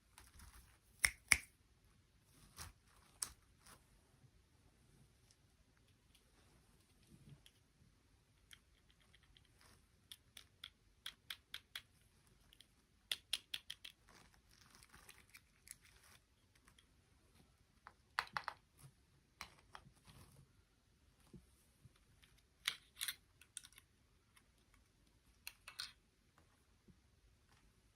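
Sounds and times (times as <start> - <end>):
small objects clicking and tapping: 8.3 - 16.9, 17.8 - 19.9, 22.1 - 26.0.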